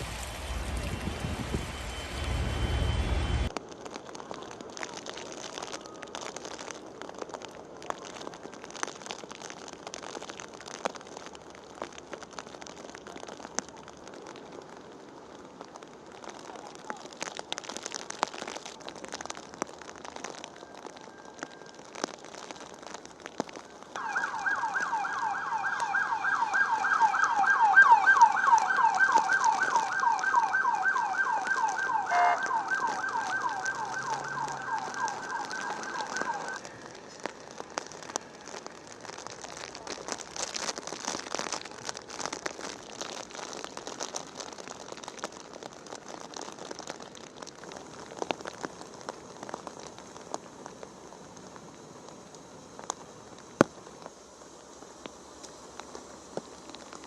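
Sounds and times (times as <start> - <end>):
rain pattering: 0.0 - 57.0
emergency siren yelping: 24.0 - 38.6.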